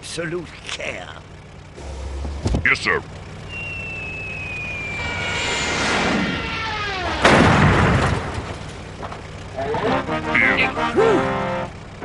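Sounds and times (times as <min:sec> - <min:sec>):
cartoon falling whistle: 0:03.5 - 0:07.3
loud boom: 0:04.7 - 0:08.6.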